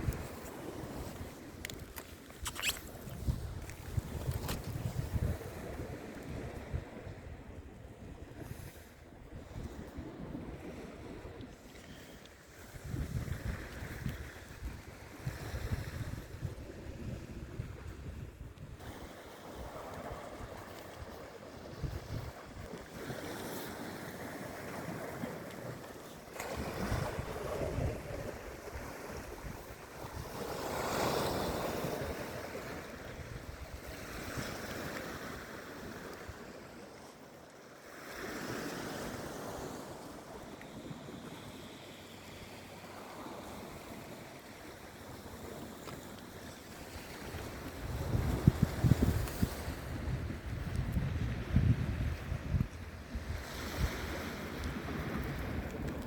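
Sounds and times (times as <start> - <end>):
wind buffeting microphone: 0.0 - 11.4, 12.6 - 25.2, 26.4 - 35.4, 46.9 - 56.0
sea waves washing in: 0.0 - 56.0.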